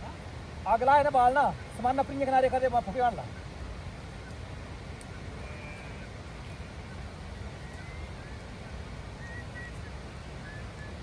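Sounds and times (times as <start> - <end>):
faint high bird chirps: 5.0 - 11.0.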